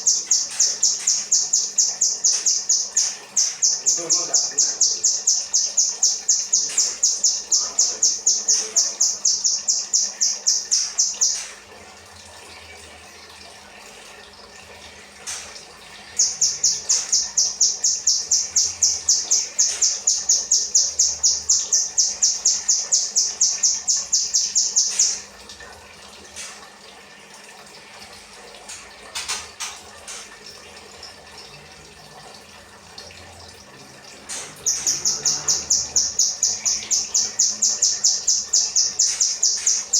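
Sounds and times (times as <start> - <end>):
bird singing sharp chip notes: 34.3 - 39.9.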